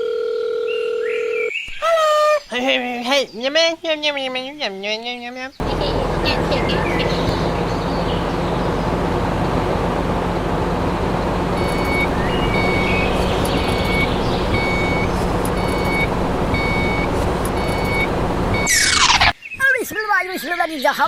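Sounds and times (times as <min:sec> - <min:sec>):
truck engine running: 0:05.6 - 0:19.3
reversing alarm beeping: 0:08.8 - 0:19.3.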